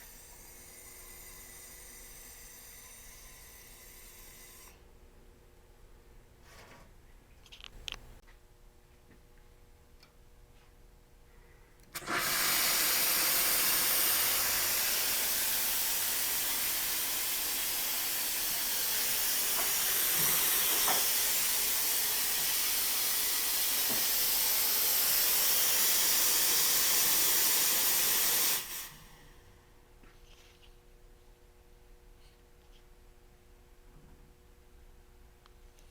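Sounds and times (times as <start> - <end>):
espresso machine steam wand hissing: 0.0 - 4.8, 12.0 - 29.3.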